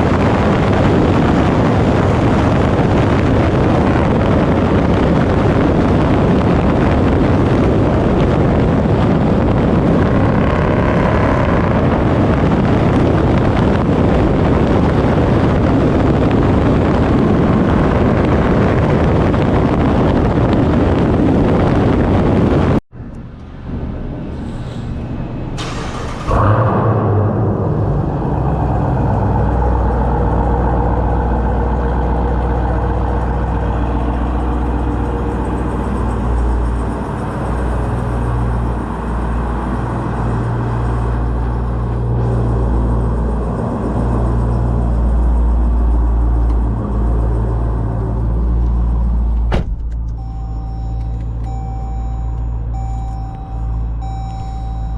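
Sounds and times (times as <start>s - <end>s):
engine droning: 0.0s - 54.9s
vehicle chime beeping: 50.0s - 54.9s.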